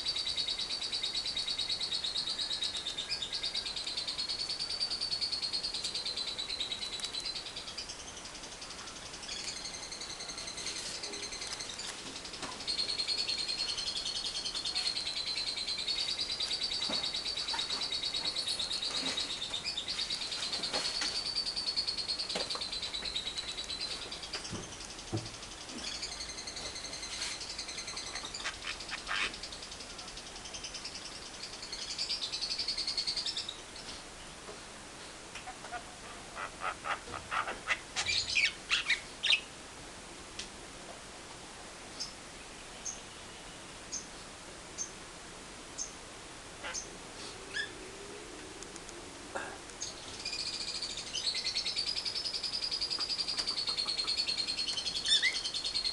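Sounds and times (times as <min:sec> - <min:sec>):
harsh bird chattering: 0:28.1 - 0:29.4, 0:35.4 - 0:39.4.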